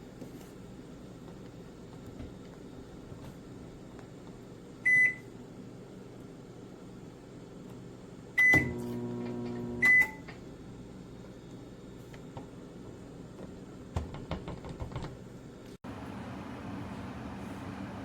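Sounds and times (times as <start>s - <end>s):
microwave humming: 0.7s - 18.0s
microwave beeps: 4.8s - 5.3s, 8.4s - 10.4s
microwave starting click: 8.4s - 10.4s.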